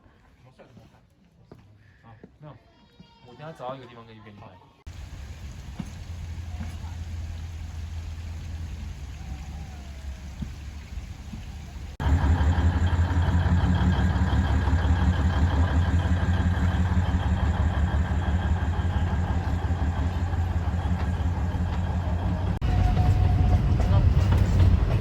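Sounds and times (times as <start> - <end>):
vehicle engine humming: 4.9 - 23.4.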